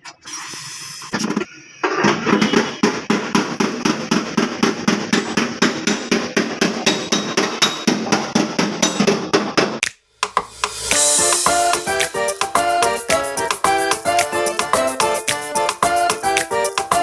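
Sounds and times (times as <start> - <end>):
hammer striking sheet metal: 9.8 - 12.2.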